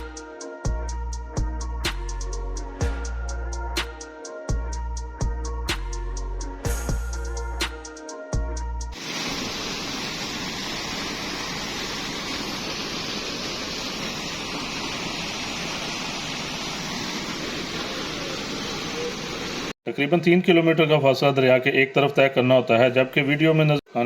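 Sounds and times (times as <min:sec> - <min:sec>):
river rushing over stones: 0:09.0 - 0:19.7.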